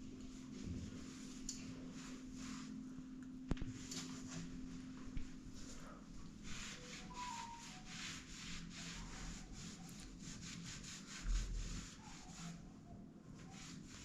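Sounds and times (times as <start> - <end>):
repeated scraping strokes: 6.4 - 12.6.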